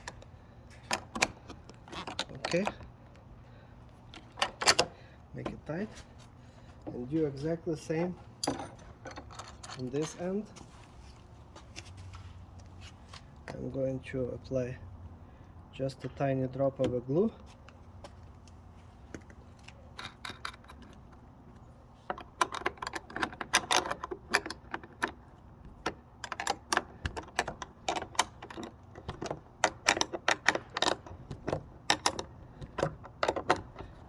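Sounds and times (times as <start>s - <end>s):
metal wrenches clinking on bolt: 0.8s - 2.8s, 4.2s - 5.7s, 8.4s - 10.4s, 22.1s - 34.0s.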